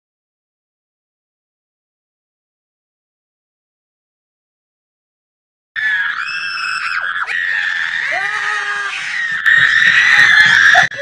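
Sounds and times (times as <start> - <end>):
person screaming: 5.8 - 11.0.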